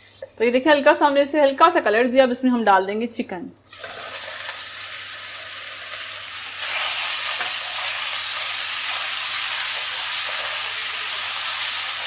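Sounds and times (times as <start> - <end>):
chicken sizzling in hot oil: 3.7 - 12.0.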